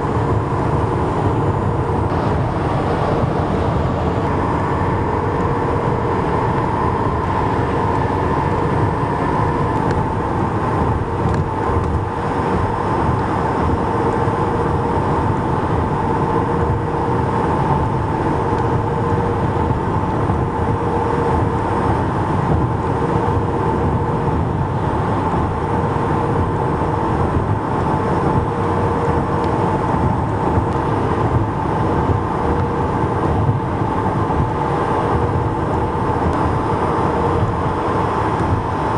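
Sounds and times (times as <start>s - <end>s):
highway traffic rushing: 0.0s - 38.9s
steady whine: 0.0s - 38.9s.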